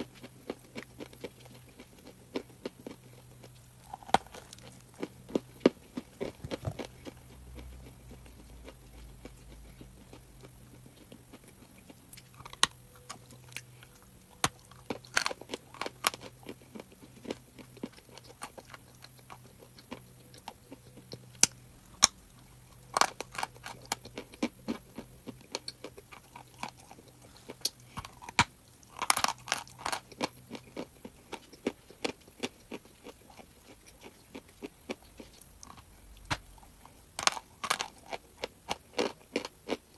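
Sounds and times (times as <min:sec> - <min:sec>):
crunching and chewing chalk: 0:00.0 - 0:39.9.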